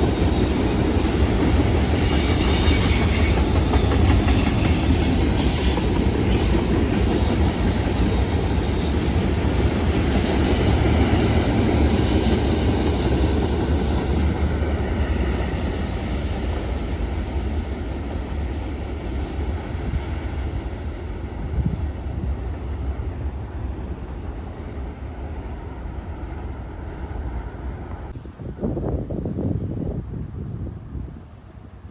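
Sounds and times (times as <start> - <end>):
high wheel squeal: 0.0 - 9.9
train wheels rumbling: 0.0 - 31.9.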